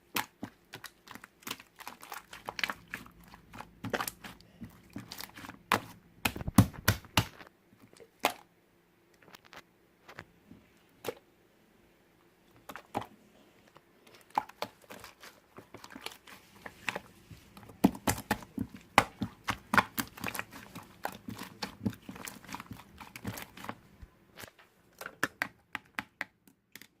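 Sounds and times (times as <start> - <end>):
crinkling handling noises: 9.2 - 11.2, 12.4 - 25.3.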